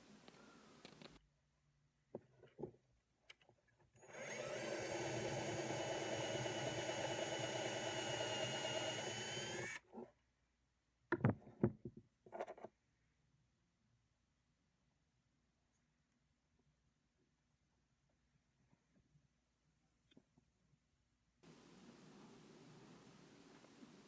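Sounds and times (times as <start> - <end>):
power drill boring into ball: 4.0 - 9.8.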